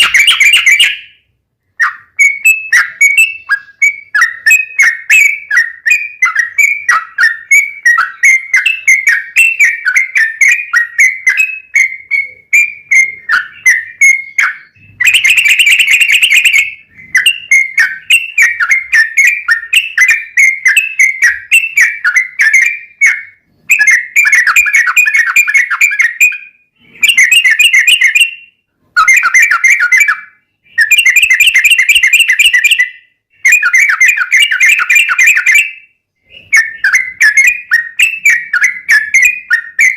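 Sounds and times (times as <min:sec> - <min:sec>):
bird chattering: 0:00.0 - 0:01.1, 0:01.8 - 0:28.3
bird singing whistled notes: 0:00.0 - 0:39.9.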